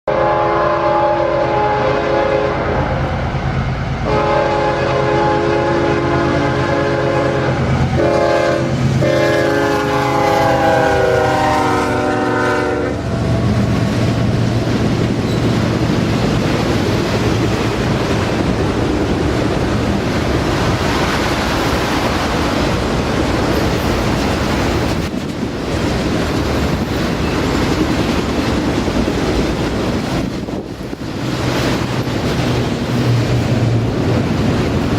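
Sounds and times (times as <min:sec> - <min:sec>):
freight train rumbling on rails: 0:00.0 - 0:34.9
locomotive air horn blasts: 0:00.1 - 0:03.0, 0:03.9 - 0:13.2.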